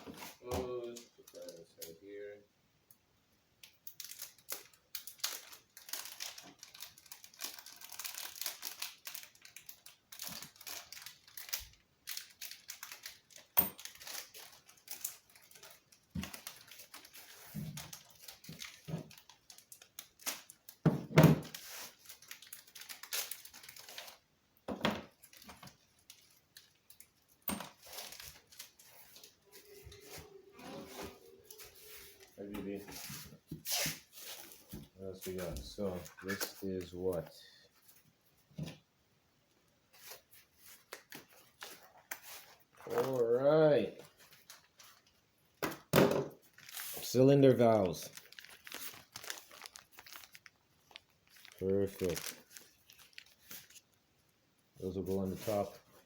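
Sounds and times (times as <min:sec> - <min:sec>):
plastic packaging crinkling and tearing: 0:00.1 - 0:02.0, 0:03.7 - 0:20.8, 0:21.4 - 0:24.3, 0:25.1 - 0:30.2, 0:40.0 - 0:45.2, 0:46.4 - 0:54.0, 0:54.8 - 0:56.0.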